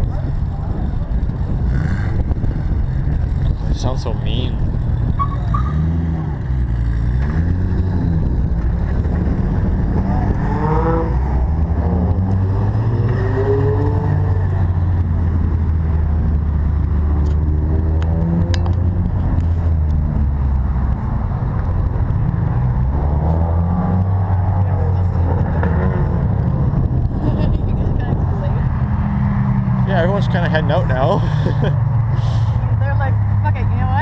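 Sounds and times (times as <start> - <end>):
engines revving: 0.0 - 34.0
sports car engines idling: 29.9 - 34.0.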